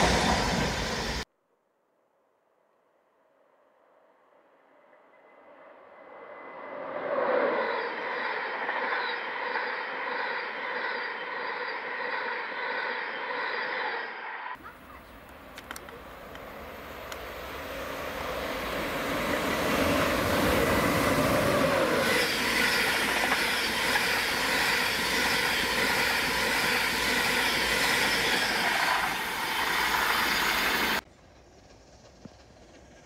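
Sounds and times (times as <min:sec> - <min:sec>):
train rumbling past at speed: 0:00.0 - 0:01.3, 0:14.6 - 0:33.0.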